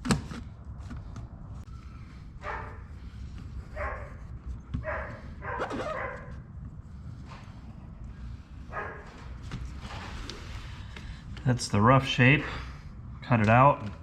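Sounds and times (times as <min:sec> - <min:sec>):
low background hum: 0:00.0 - 0:14.0
dog barking: 0:02.4 - 0:02.9, 0:03.7 - 0:04.2, 0:04.8 - 0:06.4, 0:08.7 - 0:09.1.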